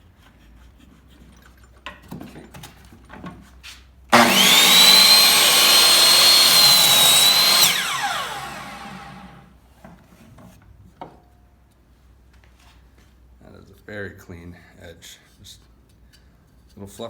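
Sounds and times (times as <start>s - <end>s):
miter saw whining: 4.1s - 9.5s
saw cutting through board: 4.1s - 9.5s.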